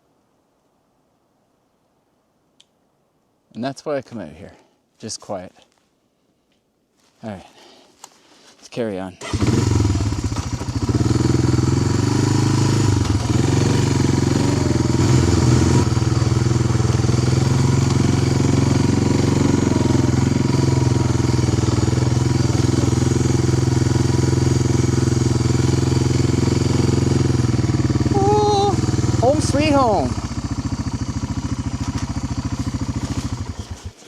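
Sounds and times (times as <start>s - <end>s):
motorbike engine running: 9.2s - 34.0s.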